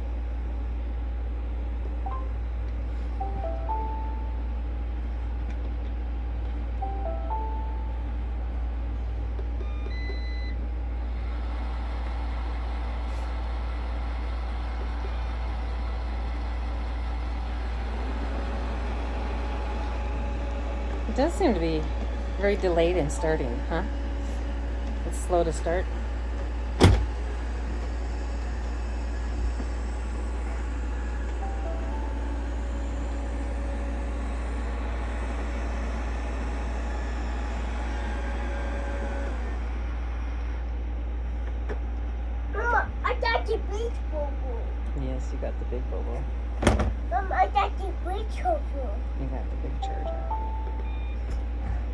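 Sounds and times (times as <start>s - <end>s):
robot vacuum humming: 11.2s - 40.8s
electronic beep chime: 49.8s - 51.3s.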